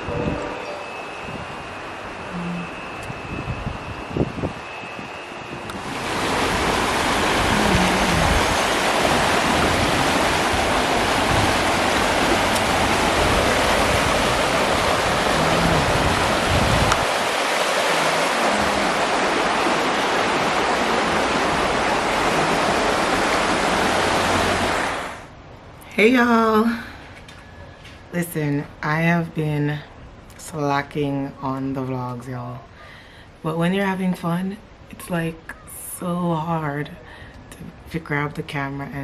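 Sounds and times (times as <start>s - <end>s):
river water rushing: 5.4s - 25.3s.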